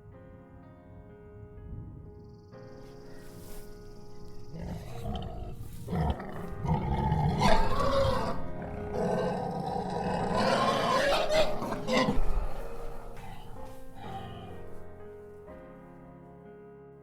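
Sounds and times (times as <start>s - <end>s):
background music: 0.0s - 17.0s
animal roaring: 4.4s - 14.8s.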